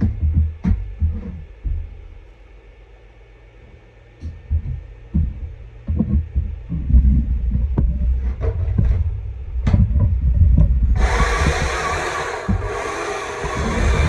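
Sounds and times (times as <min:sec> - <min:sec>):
low thuds and rumble: 0:00.0 - 0:02.5, 0:03.7 - 0:14.0
electric chainsaw motor whirring: 0:11.0 - 0:14.0.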